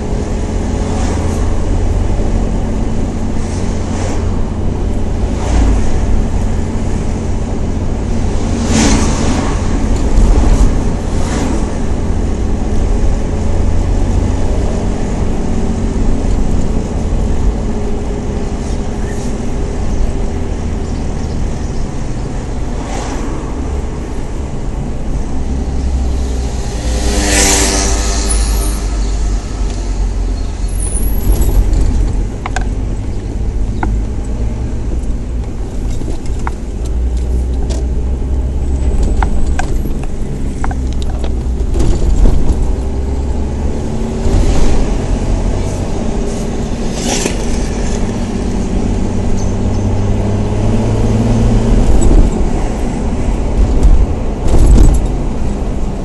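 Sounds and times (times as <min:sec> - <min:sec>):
car engine and road noise: 0:00.0 - 0:56.0
loud burst of rushing noise: 0:22.8 - 0:32.0.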